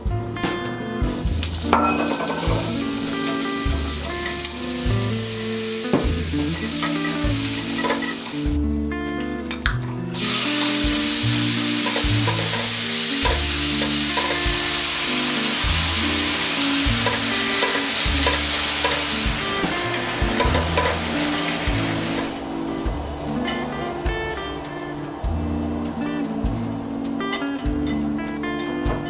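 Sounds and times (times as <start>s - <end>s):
light background music: 0.0s - 29.0s
oil sizzling in a frying pan: 1.1s - 8.6s, 10.2s - 24.8s.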